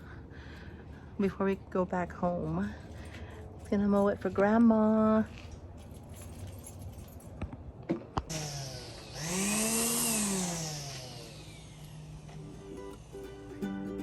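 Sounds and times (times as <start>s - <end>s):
lawn mower motor running: 8.3s - 14.0s.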